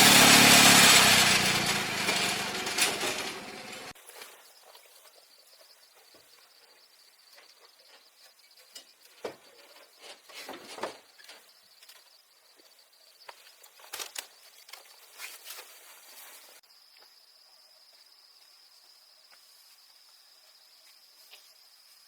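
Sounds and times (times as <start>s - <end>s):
rustling and crackling leaves: 0.0s - 5.0s, 13.5s - 16.6s.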